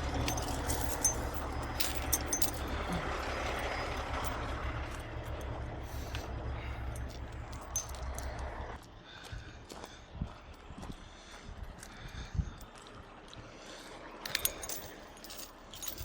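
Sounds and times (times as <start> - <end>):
sharp metallic clinks: 0.0 - 8.6, 14.2 - 16.0
diesel engine idling: 0.0 - 16.0.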